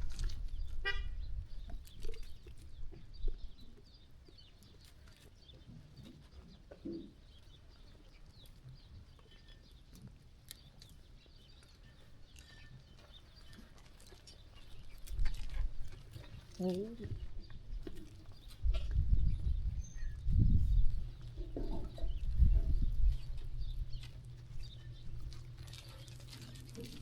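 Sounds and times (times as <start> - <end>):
knocks and clicks of flock moving: 21.2 - 27.0.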